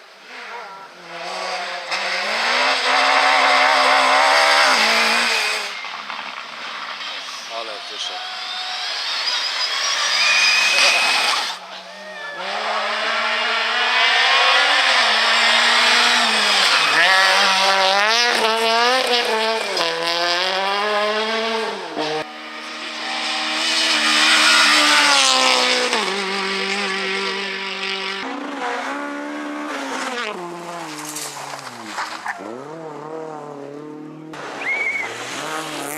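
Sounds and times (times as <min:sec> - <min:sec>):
rally car engines revving: 0:00.0 - 0:35.9
tyre squeal: 0:07.0 - 0:12.9, 0:34.5 - 0:35.9.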